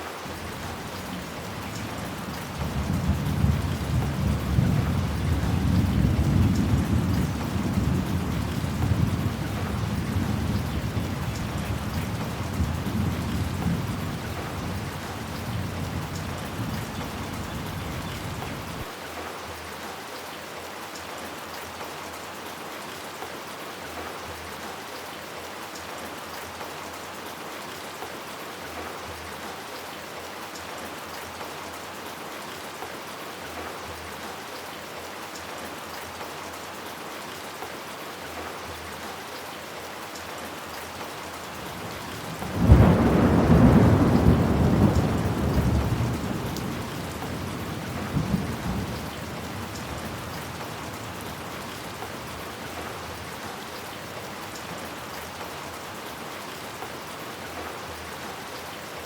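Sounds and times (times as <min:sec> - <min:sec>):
heavy rain falling: 0:00.0 - 0:59.0
thunder rumble: 0:42.2 - 0:51.3.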